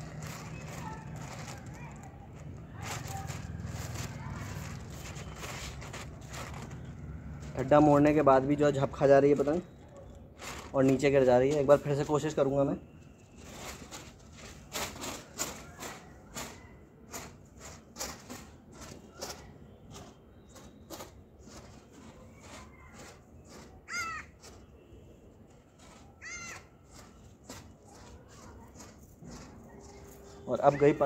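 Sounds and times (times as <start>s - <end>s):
bird harsh calls: 23.4s - 24.6s, 26.0s - 27.1s.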